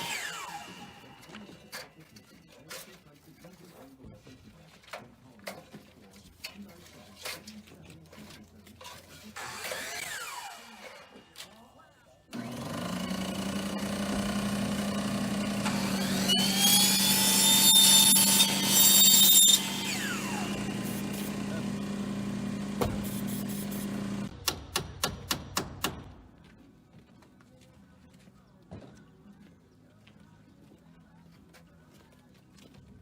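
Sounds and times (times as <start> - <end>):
power tool motor whining: 0.0 - 1.3, 12.3 - 24.3.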